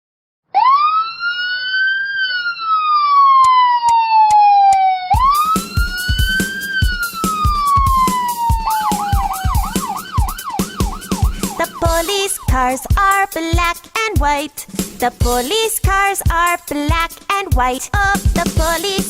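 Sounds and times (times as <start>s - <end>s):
police siren wailing: 0.5s - 13.0s
drum-backed music: 5.2s - 19.0s.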